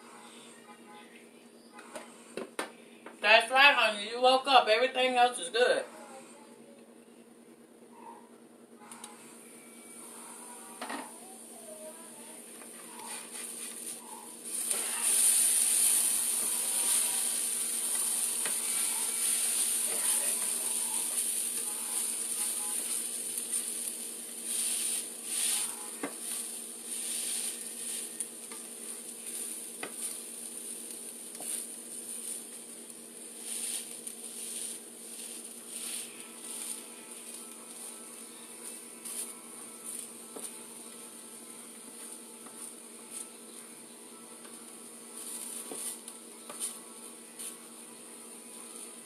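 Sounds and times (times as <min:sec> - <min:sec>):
potatoes sizzling in a skillet: 0:14.5 - 0:32.5.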